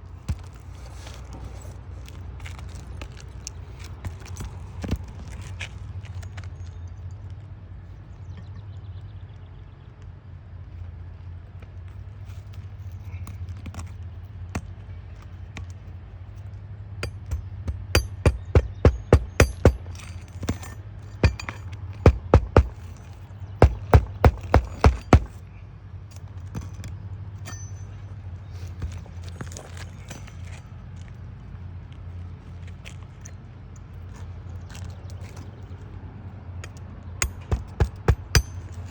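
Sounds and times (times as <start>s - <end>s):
hammer driving nails: 17.0s - 25.4s, 37.2s - 38.9s
steady low hum: 17.0s - 25.7s.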